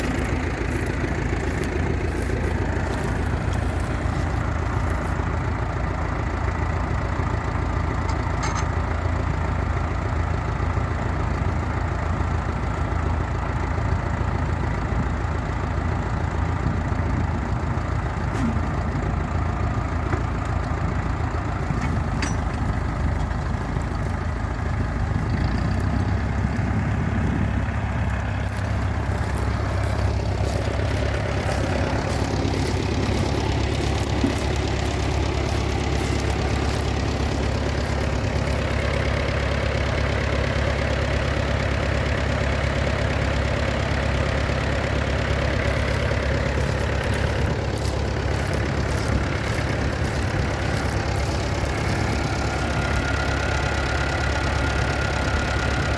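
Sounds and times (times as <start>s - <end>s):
tractor engine idling: 0.0s - 55.9s.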